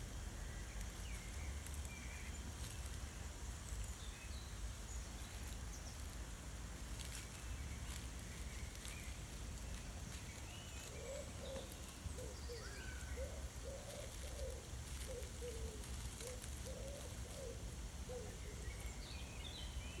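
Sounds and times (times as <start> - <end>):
small birds chirping: 0.0 - 20.0
steady low rumble: 0.0 - 20.0
bird cooing: 10.7 - 19.0.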